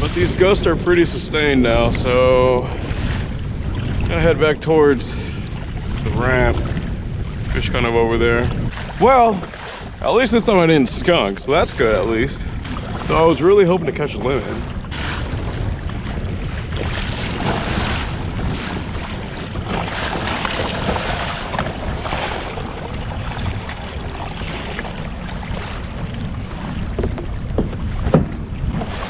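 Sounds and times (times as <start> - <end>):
waves splashing against kayak hull: 0.0 - 29.0
wind buffeting microphone: 0.0 - 29.0
sharp knocks: 27.0 - 28.4.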